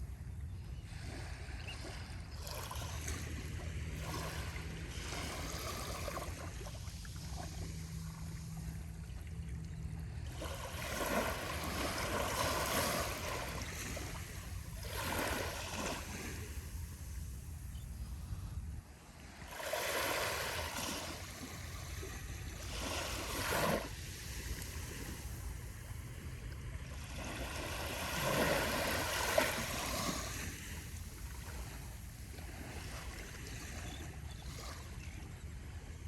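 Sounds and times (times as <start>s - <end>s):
low steady rumble: 0.0s - 19.5s
gentle waves lapping on shore: 0.0s - 36.0s.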